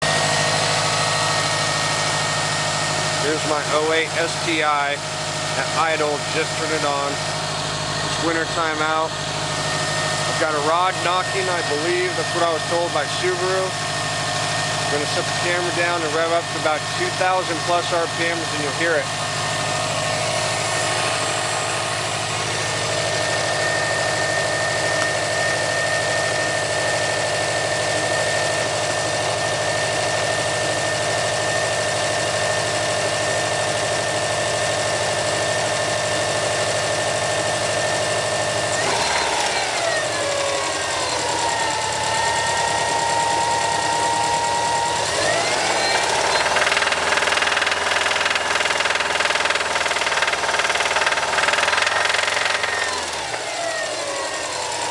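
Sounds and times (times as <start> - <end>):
car engine at raised revs: 0.0 - 54.9
engine rod knock: 46.1 - 52.9.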